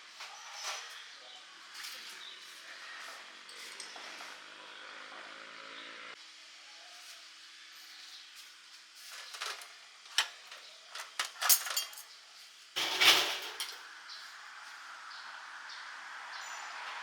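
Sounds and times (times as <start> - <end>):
metal cookware clinking and clattering: 9.1 - 12.1, 12.8 - 13.8
scraping clatter: 9.1 - 12.1, 12.8 - 13.8.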